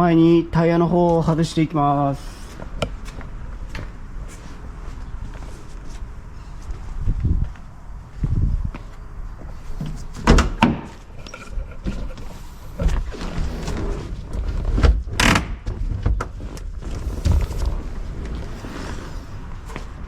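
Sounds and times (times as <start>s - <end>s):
knocks and clanks on a car wheel: 10.2s - 11.0s.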